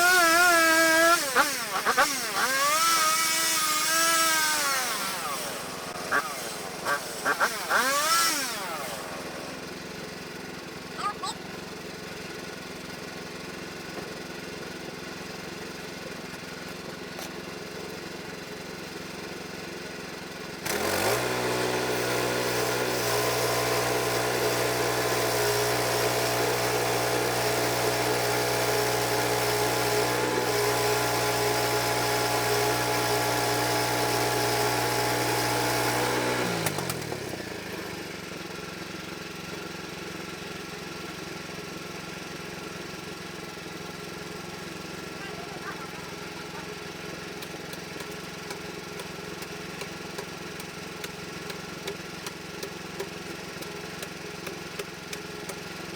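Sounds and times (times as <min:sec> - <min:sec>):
saw cutting through log: 0:00.0 - 0:11.4, 0:20.6 - 0:38.3, 0:44.2 - 0:55.9
sawmill engine running: 0:00.0 - 0:55.9.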